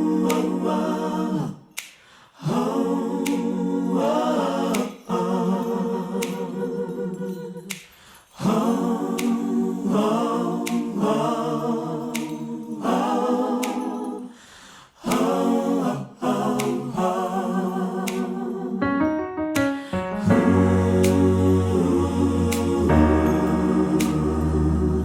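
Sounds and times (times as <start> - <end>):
a cappella vocal harmonies: 0.0 - 25.0
sharp percussive click: 7.7 - 8.1, 9.2 - 9.5, 10.7 - 11.0, 12.1 - 12.9, 21.0 - 21.4, 23.9 - 24.4.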